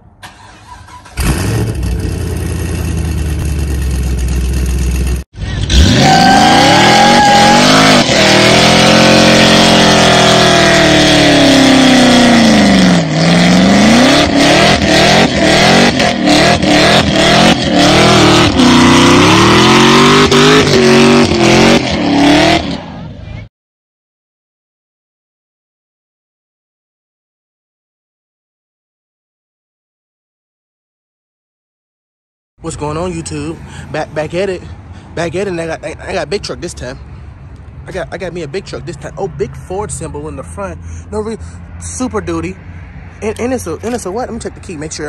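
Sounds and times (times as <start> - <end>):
car engine revving hard: 1.1 - 3.8, 5.5 - 23.0.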